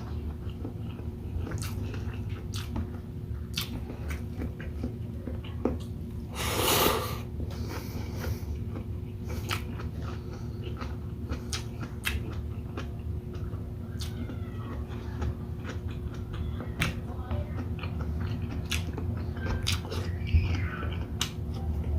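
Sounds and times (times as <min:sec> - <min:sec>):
wet chewing: 0:00.0 - 0:21.9
slurping: 0:06.3 - 0:08.6.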